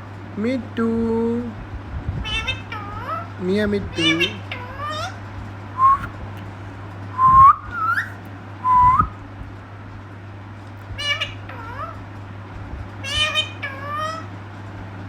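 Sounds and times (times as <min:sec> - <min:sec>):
parrot raspy calls: 0:02.2 - 0:05.3, 0:07.6 - 0:08.2, 0:11.0 - 0:12.1, 0:13.0 - 0:14.4
parrot whistling: 0:05.8 - 0:06.1, 0:07.2 - 0:09.2.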